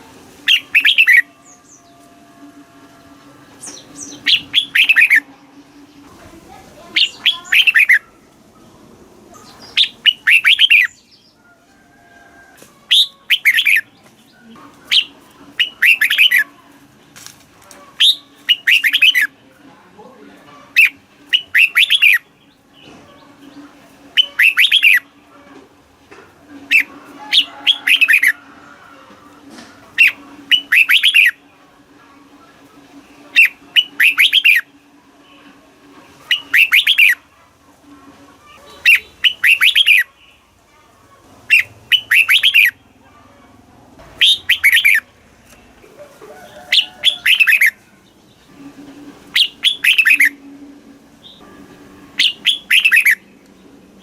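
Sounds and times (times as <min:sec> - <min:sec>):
bird singing whistled notes: 0:00.4 - 0:02.3, 0:03.6 - 0:05.3, 0:06.9 - 0:08.0, 0:09.6 - 0:11.2, 0:12.9 - 0:13.9, 0:14.9 - 0:16.4, 0:18.0 - 0:19.3, 0:20.8 - 0:22.2, 0:24.2 - 0:25.1, 0:30.0 - 0:31.4, 0:33.3 - 0:34.7, 0:36.3 - 0:37.2, 0:38.8 - 0:40.1, 0:41.5 - 0:42.8, 0:44.2 - 0:45.0, 0:46.6 - 0:47.8, 0:49.3 - 0:50.4, 0:52.2 - 0:53.2.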